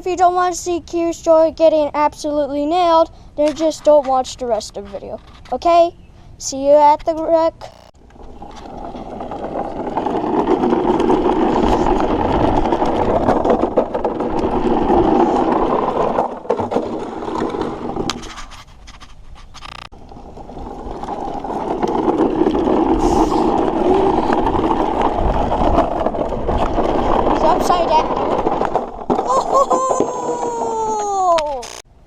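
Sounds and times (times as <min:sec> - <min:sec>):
toy truck wheels rolling and rattling: 0:08.0 - 0:31.8.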